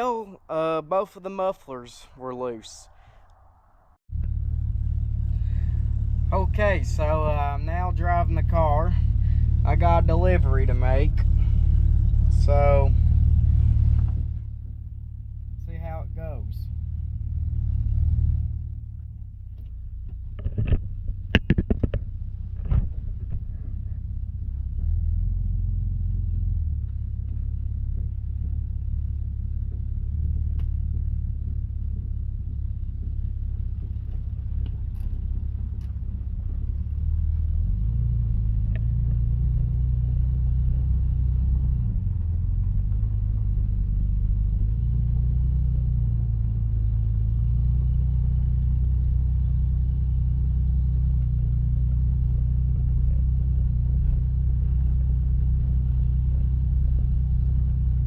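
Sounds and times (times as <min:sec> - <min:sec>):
car engine rumbling: 0:00.0 - 0:58.0.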